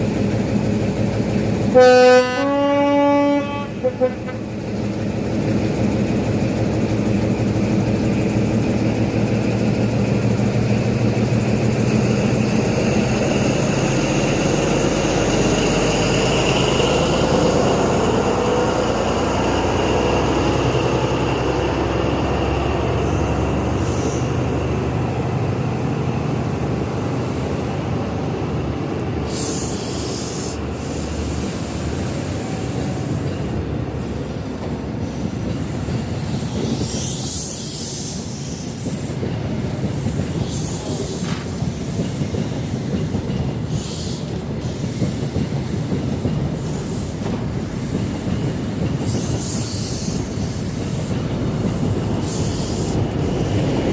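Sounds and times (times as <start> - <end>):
train engine hum: 0.0 - 53.9
wheel on rail rumbling: 0.0 - 53.9
short high hisses: 29.3 - 33.2.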